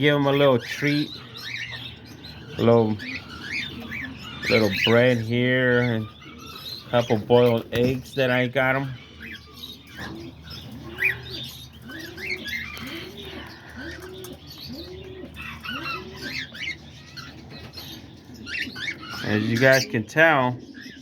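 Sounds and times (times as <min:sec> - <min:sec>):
dove cooing: 0:00.0 - 0:21.0
small parrots chirping and squeaking: 0:00.0 - 0:21.0.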